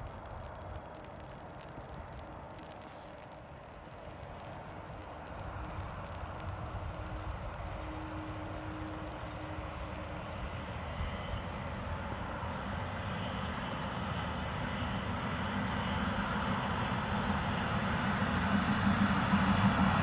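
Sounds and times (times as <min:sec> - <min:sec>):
train rumble and engine drone: 0:00.0 - 0:20.0.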